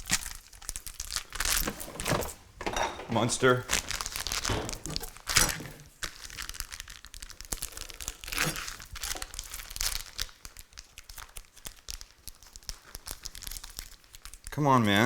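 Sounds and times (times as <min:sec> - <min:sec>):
plastic wrapping crinkling: 0:00.0 - 0:14.5
light clicks and knocks: 0:01.6 - 0:05.2.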